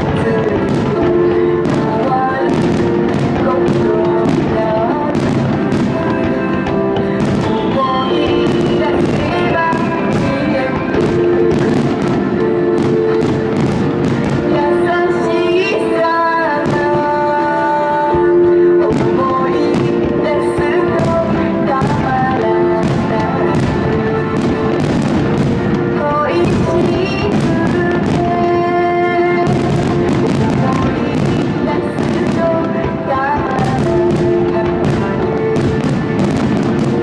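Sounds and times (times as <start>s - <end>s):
fireworks bursting: 0.0s - 37.0s
music with long held notes: 0.0s - 37.0s.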